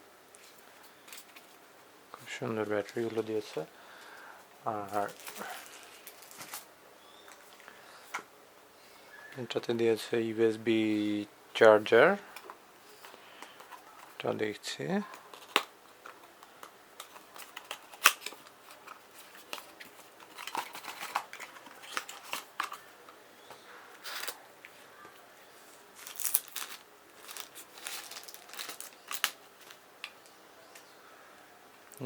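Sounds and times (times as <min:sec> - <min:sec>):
wrapping rustling and crinkling: 0:04.7 - 0:07.7, 0:15.0 - 0:23.0, 0:24.0 - 0:24.4, 0:25.6 - 0:30.9.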